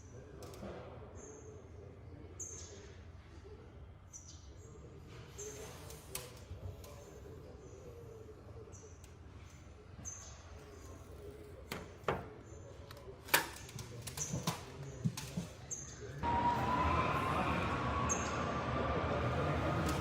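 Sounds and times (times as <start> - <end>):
machine running with whine: 16.2 - 20.0.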